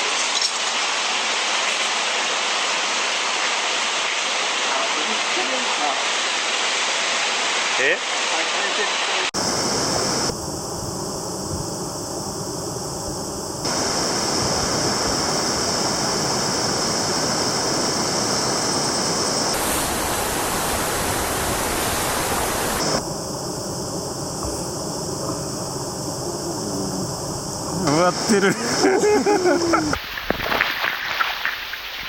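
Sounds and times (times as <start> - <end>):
rushing water: 0.0 - 10.3, 13.6 - 23.0, 28.1 - 32.0.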